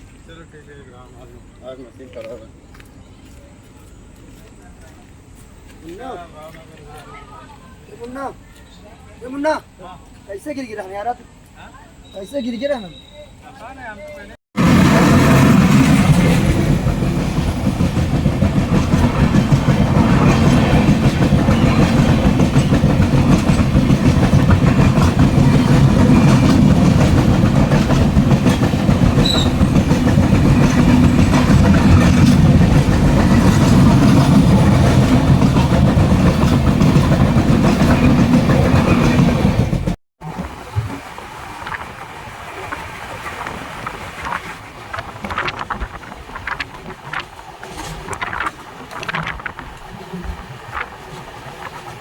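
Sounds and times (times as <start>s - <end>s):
train rattling and clatter: 14.6s - 40.0s, 42.5s - 52.0s
train wheels rumbling on rails: 14.6s - 40.5s, 41.6s - 52.0s.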